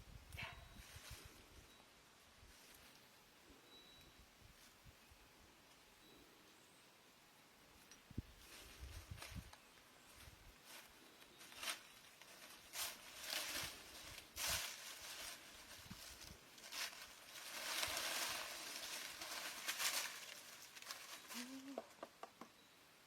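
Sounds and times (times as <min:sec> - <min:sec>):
rustling and brushing: 0:00.4 - 0:01.6, 0:08.2 - 0:21.9.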